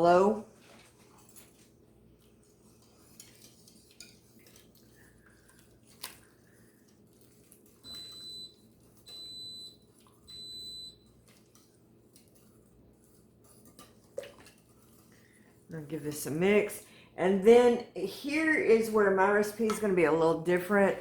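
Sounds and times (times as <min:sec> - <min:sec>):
pressure cooker beeping: 0:07.9 - 0:11.1.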